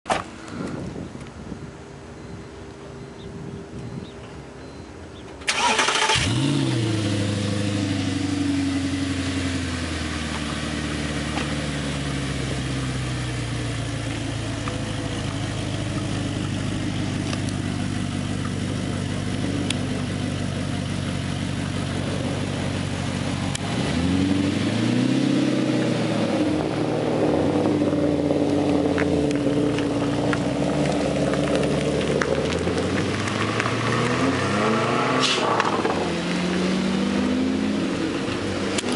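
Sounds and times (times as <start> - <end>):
car engine idling: 5.1 - 24.7, 25.6 - 33.7
car engine starting: 5.1 - 38.9
car engine revving: 5.5 - 38.9.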